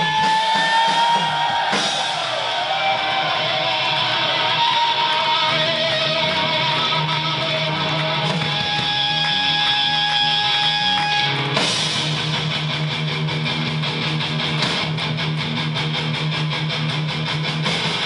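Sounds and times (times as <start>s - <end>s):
bass line: 0.0s - 18.0s
distorted electric guitar: 0.0s - 18.0s.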